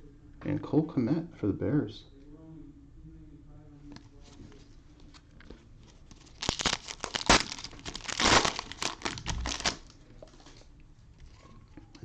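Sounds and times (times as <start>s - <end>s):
cellophane wrapper crinkling and tearing: 5.8s - 10.6s.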